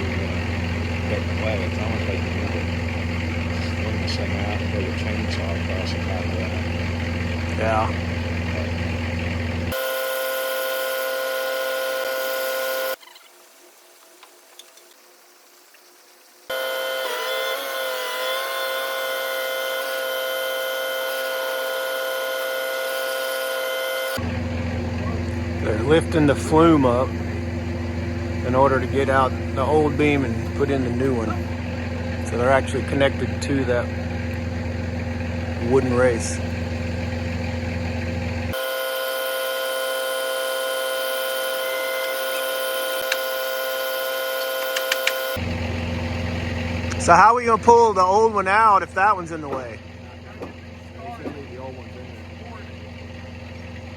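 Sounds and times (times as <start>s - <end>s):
machine high-pitched whine: 0.0s - 13.0s, 16.5s - 34.6s, 38.5s - 47.7s
sharp light clicks: 44.6s - 45.3s.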